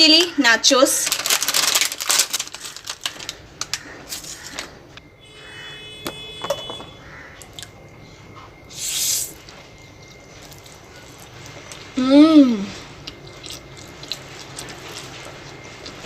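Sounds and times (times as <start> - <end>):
brief high steady tone: 5.1 - 7.0.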